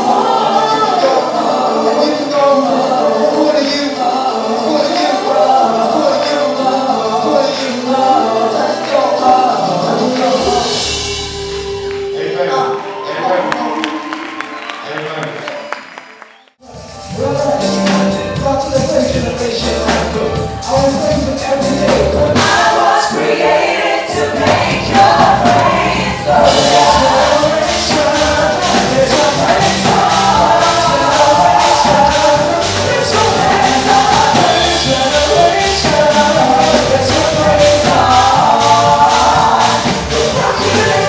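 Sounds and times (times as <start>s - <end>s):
gospel singing: 0.0s - 41.0s
steady beat with tambourine: 16.6s - 41.0s.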